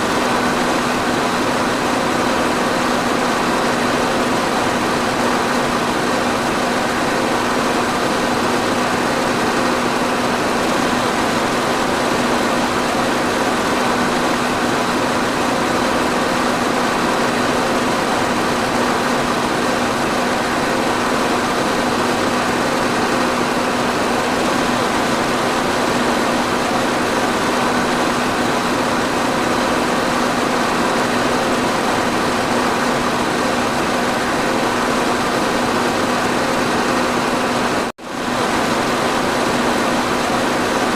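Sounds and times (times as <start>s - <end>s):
electric fan air rush: 0.0s - 40.9s
fan motor hum: 0.0s - 40.9s.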